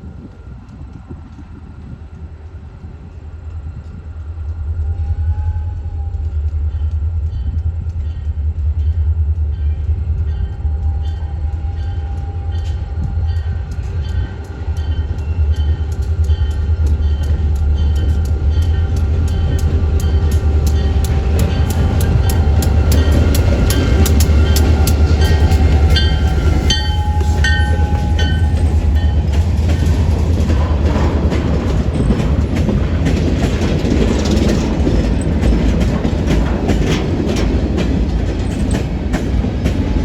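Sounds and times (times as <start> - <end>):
train rumble: 0.0 - 40.0
wheels clicking over rail joints: 11.5 - 40.0.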